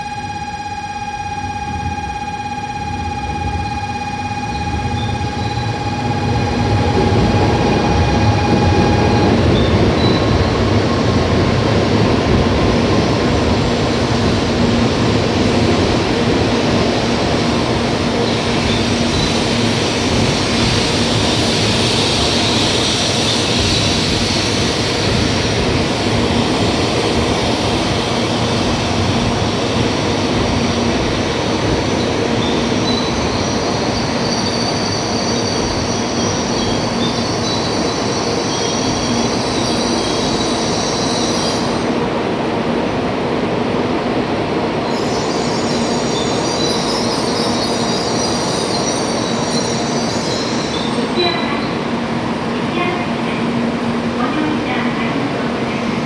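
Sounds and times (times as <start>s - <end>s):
steady high-pitched tones: 0.0s - 43.1s
rush of train wheels: 5.7s - 56.0s.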